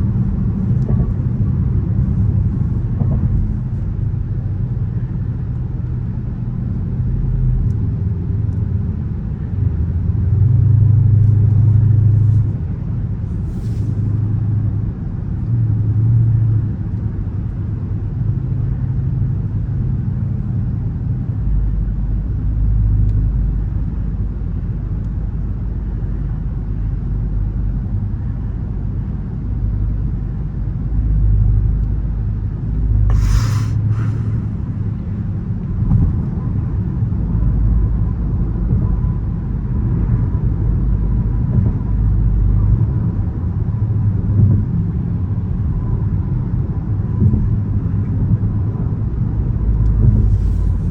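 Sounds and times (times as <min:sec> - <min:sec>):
car engine rumble from inside: 0:00.0 - 0:50.9
short hiss: 0:33.1 - 0:34.5.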